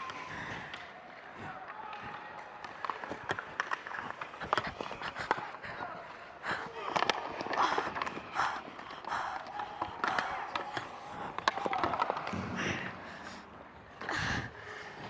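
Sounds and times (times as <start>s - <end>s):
skate blades scraping ice: 0.0s - 5.7s
hockey sticks and puck clacking: 0.0s - 15.0s.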